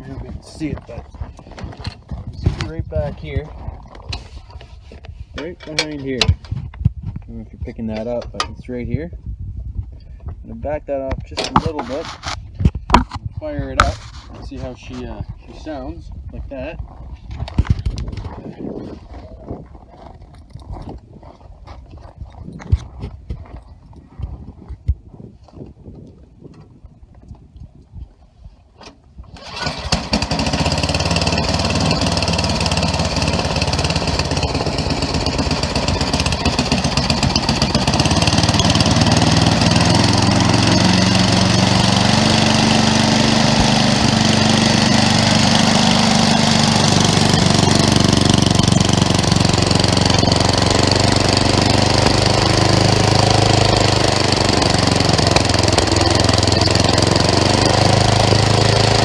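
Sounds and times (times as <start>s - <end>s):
snowblower engine running: 29.4s - 59.0s.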